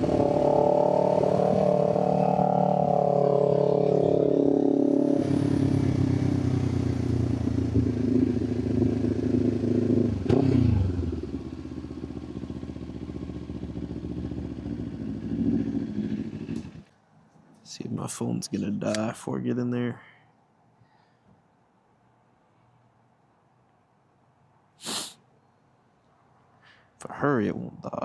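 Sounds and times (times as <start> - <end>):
motorcycle engine revs falling: 0.0 - 16.9
motorcycle engine idling: 5.4 - 9.9, 11.2 - 16.8.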